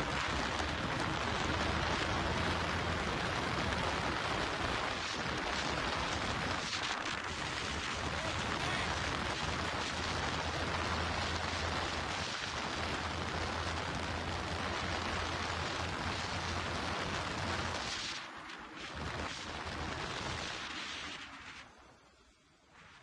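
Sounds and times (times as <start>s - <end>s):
wind rushing over microphone: 0.0s - 18.2s
motorcycle engine drone: 0.0s - 21.5s.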